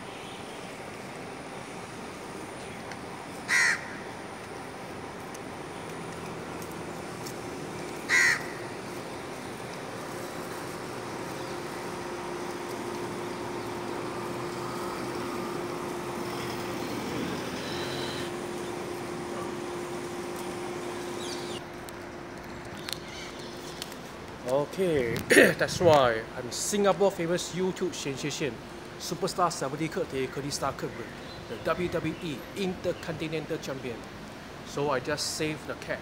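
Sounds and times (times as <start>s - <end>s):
steady background noise: 0.0s - 36.0s
loud bird call: 3.5s - 4.1s, 8.1s - 8.8s.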